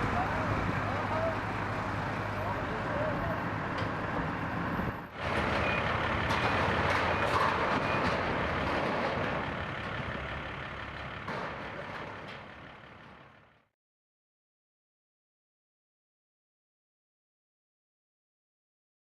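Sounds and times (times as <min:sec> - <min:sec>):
heavy vehicle engine running: 0:00.0 - 0:13.7.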